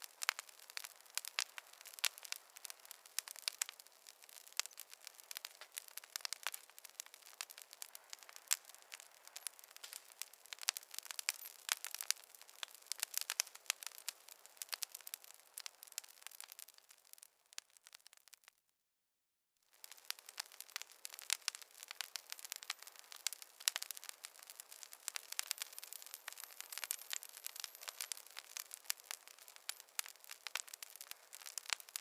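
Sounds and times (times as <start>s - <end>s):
faint hiss: 0.0s - 17.4s
wood fire crackling and popping: 0.0s - 18.6s, 19.7s - 32.0s.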